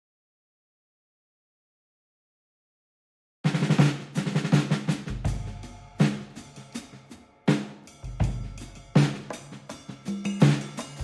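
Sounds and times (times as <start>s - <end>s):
drum beat with deep bass: 3.5s - 11.0s.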